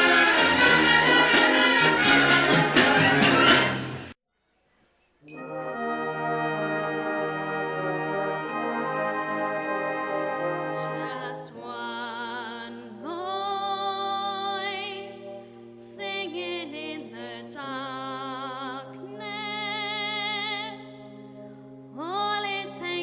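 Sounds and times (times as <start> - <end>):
brass band playing: 0.0 - 4.2, 5.4 - 11.6.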